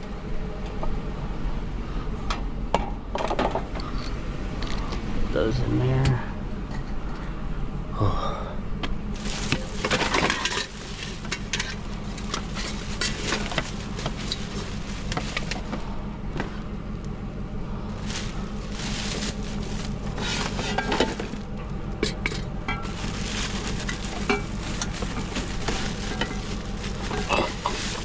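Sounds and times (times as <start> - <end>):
steady low hum: 0.0 - 28.0
rustling: 9.1 - 16.7, 17.9 - 21.6, 22.8 - 28.0
metal and plastic clattering: 9.2 - 16.6, 18.0 - 28.0.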